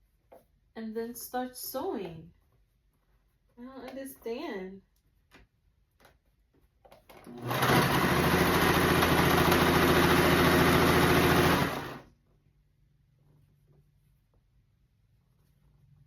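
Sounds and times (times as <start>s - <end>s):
electric sewing machine running: 7.3s - 12.1s.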